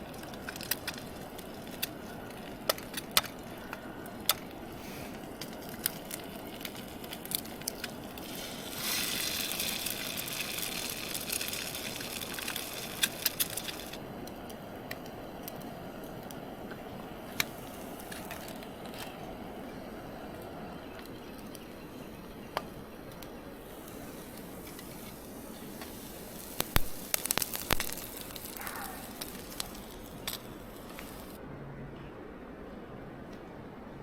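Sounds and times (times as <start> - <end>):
hissing rush: 0.0 - 31.4
wood fire crackling: 0.0 - 31.4.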